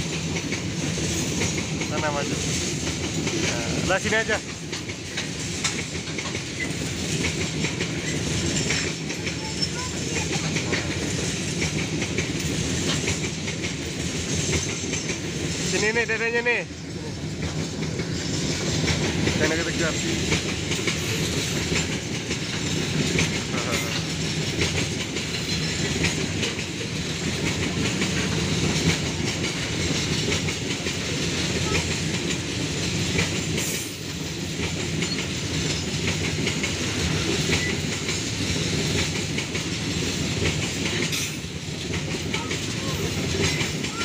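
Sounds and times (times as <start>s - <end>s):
train wagons rattling over rail joints: 0.0s - 44.0s.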